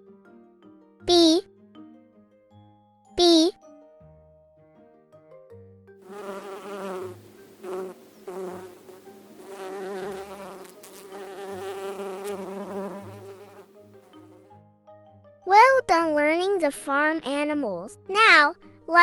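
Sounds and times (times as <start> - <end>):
bee buzzing: 6.0 - 14.5.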